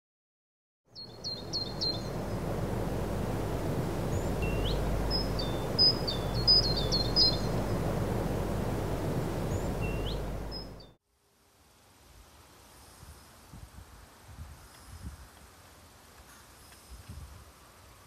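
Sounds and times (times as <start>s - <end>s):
low rushing background noise: 1.0s - 11.0s
small birds chirping: 1.0s - 11.0s.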